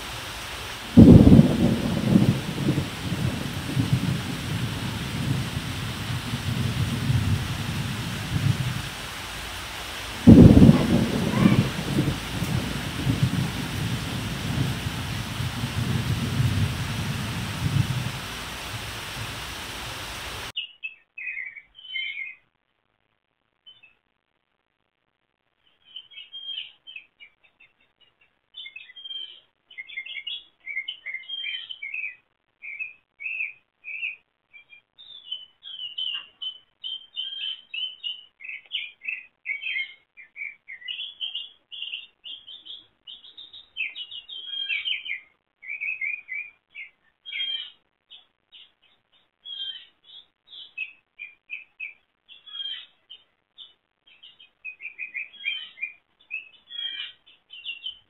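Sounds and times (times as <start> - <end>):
songbird chirping and whistling: 20.6 - 22.4, 25.8 - 27.4, 28.6 - 48.7, 49.4 - 58.0.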